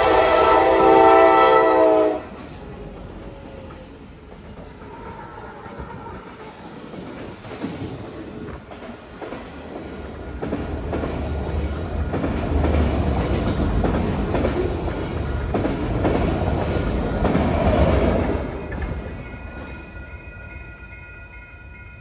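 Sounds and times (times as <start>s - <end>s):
freight train rumble: 0.0s - 22.0s
wheels clacking over rails: 2.3s - 19.8s.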